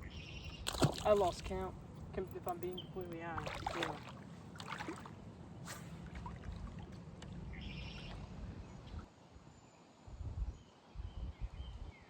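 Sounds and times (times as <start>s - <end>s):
low rumble of water: 0.0s - 9.2s
wind: 0.0s - 12.0s.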